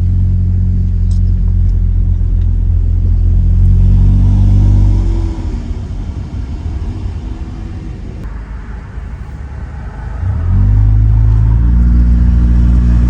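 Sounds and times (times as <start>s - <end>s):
car exhaust drone: 0.0s - 13.0s
uneven low exhaust rumble: 0.0s - 13.0s.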